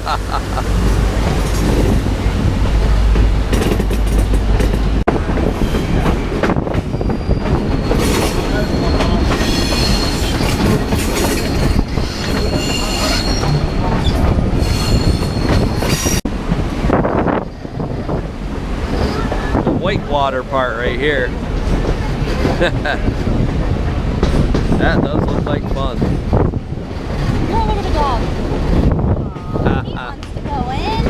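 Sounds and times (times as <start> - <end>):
train wheels rumbling on track: 0.0 - 31.0
high-pitched wheel squeal: 6.9 - 10.6, 11.6 - 16.2.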